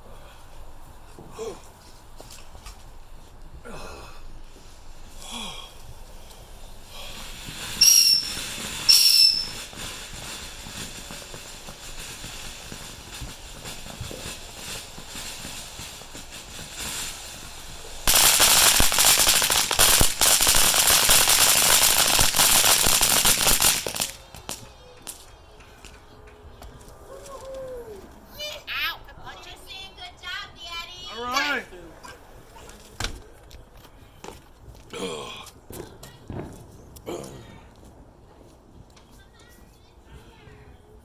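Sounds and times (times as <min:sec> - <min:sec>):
firework hissing and crackling: 0:00.0 - 0:25.9
firework whistles: 0:05.9 - 0:25.3.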